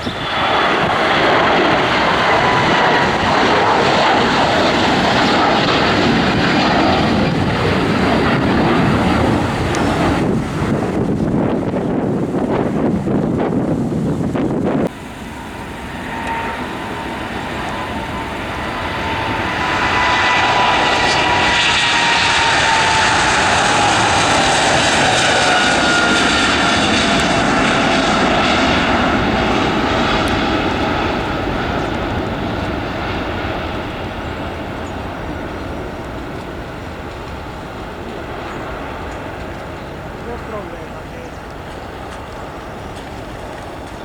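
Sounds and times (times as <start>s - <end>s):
aircraft engines passing: 0.0s - 44.0s
engine whine sliding down: 14.8s - 32.8s.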